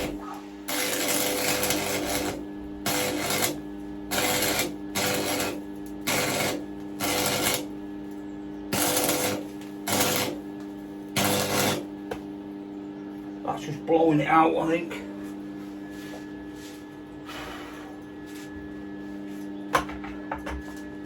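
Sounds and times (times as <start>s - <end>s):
welding arc crackling: 0.0s - 12.1s
steady hum: 0.0s - 20.3s.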